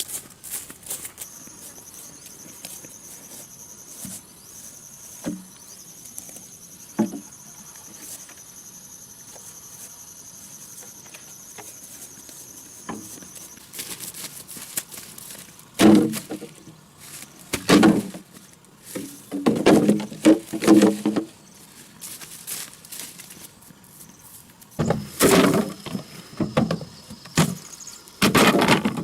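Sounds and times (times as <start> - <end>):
insect trilling: 1.2 - 14.6
sharp knocks: 15.8 - 16.5.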